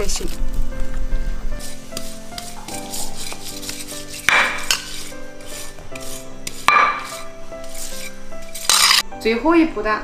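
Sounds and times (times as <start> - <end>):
background music: 0.0 - 10.0
metal utensil scraping a pot: 1.6 - 9.0.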